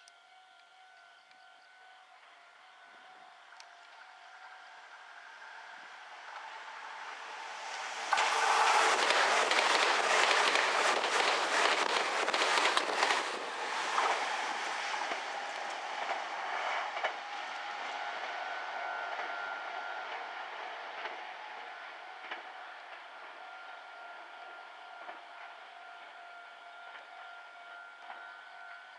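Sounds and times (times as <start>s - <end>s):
train wheels clattering over rail joints: 8.1s - 17.6s.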